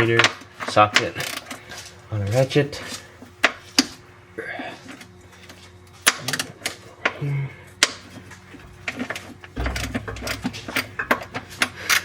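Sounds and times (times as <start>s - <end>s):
low rumble: 9.6s - 11.8s.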